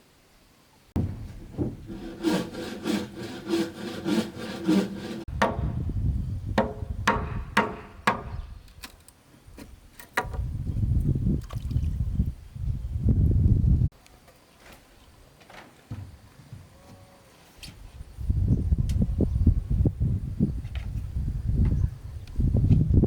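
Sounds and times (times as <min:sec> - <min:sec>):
hand saw cutting wood: 0:01.0 - 0:05.7
sharp knocks: 0:01.0 - 0:05.8, 0:06.6 - 0:08.4.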